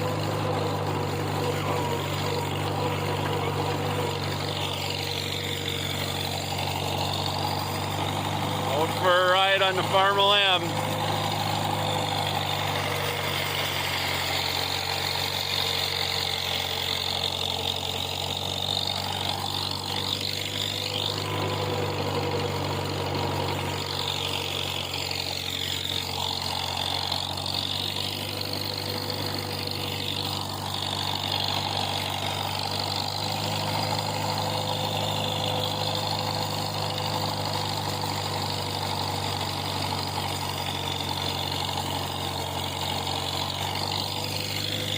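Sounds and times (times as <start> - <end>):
tractor engine running: 0.0 - 44.9.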